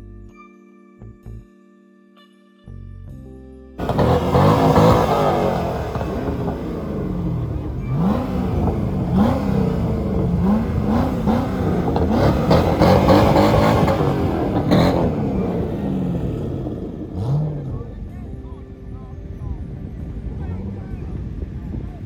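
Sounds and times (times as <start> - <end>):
car engine revving: 3.8 - 18.6.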